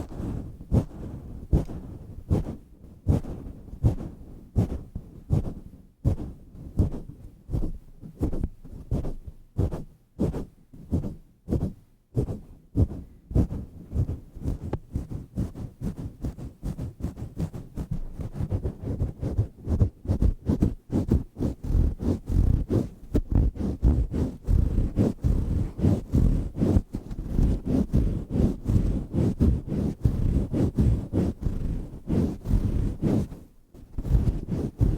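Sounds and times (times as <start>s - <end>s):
muffled thumps on microphone: 0.0s - 34.9s.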